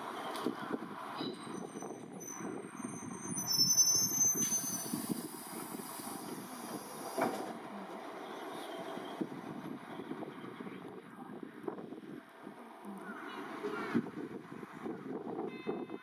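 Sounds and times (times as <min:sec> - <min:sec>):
electric train rumbling: 0:00.0 - 0:15.9
train brakes squealing: 0:01.2 - 0:07.6, 0:08.2 - 0:09.3
air hissing: 0:04.1 - 0:07.5.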